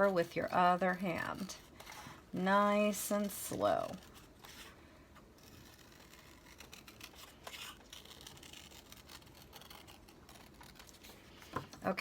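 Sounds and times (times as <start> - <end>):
scissors cutting paper: 2.7 - 4.7, 5.4 - 12.0.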